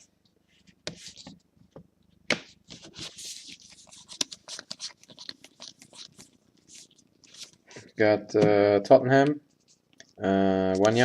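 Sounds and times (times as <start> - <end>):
trading cards rustling and clicking: 2.7 - 7.6.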